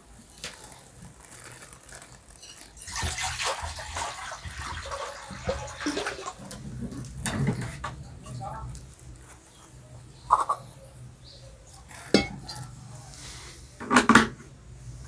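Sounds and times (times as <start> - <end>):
paste sizzling in oil: 0.1 - 6.7
steel spoon scraping a pot: 0.4 - 7.7, 11.6 - 13.4.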